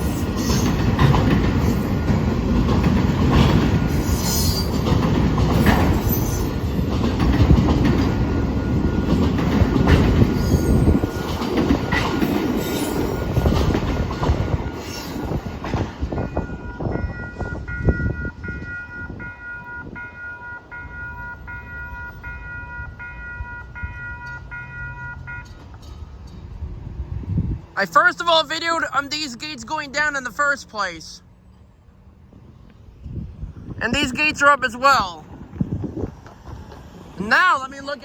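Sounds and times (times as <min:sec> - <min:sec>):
train wheel squeal: 0:00.0 - 0:00.9, 0:03.7 - 0:04.8, 0:05.5 - 0:06.9, 0:08.4 - 0:26.5
crossing warning bell ringing: 0:00.0 - 0:02.9, 0:07.8 - 0:26.5
train wheels rumbling and clattering: 0:00.0 - 0:19.2, 0:35.2 - 0:38.0.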